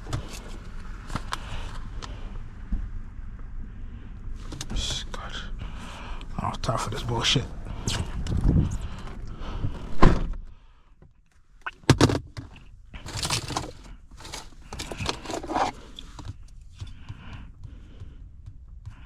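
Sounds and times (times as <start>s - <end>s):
scraping or rustling: 13.0s - 16.3s.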